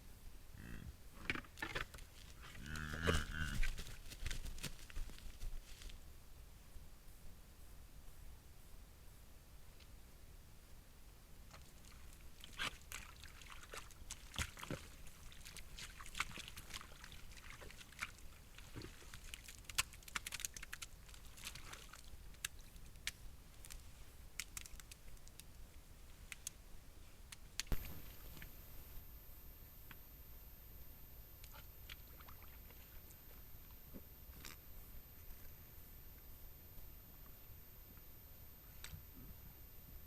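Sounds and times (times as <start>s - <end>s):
faint high whine: 25.8s - 40.0s.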